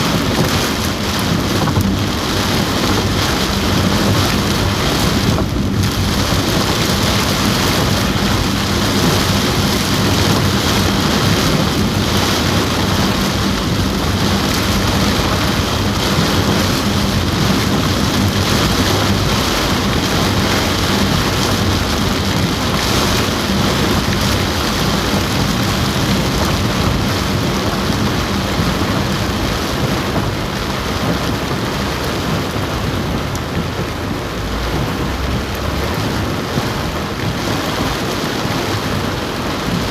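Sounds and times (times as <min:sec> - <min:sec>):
heavy rain on car roof: 0:00.0 - 0:39.9.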